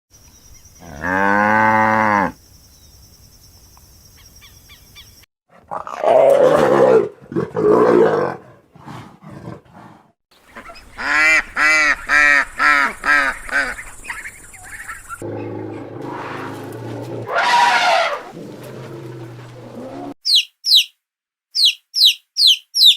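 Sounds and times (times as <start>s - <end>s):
rough noisy animal call: 10.5s - 20.2s.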